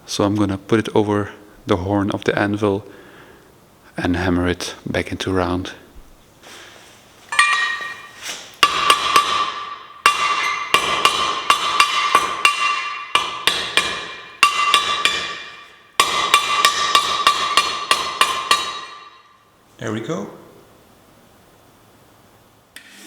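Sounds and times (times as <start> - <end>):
hammer striking steel: 7.3 - 19.4
metal ringing: 7.3 - 19.5.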